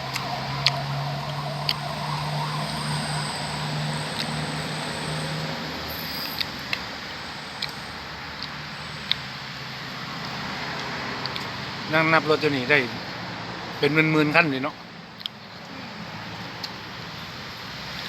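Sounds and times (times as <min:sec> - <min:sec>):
vehicle engine passing: 0:00.0 - 0:14.3.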